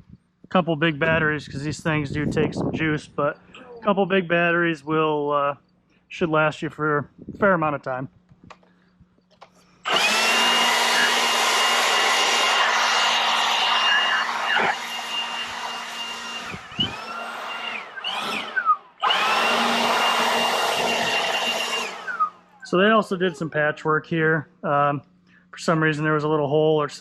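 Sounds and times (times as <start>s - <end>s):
leaf blower whining: 9.6s - 23.6s.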